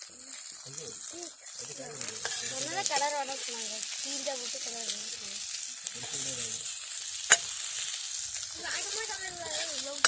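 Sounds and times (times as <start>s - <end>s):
shallots sizzling in hot oil: 0.0s - 10.0s
steel ladle stirring: 2.1s - 3.2s.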